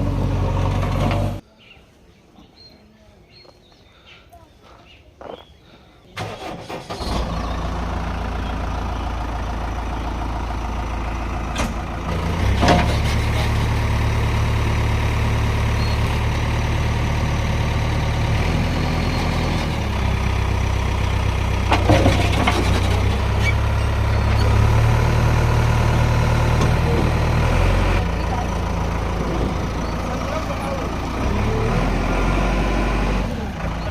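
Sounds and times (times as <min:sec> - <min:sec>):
heavy diesel engine running: 0:00.0 - 0:01.4, 0:06.2 - 0:33.9.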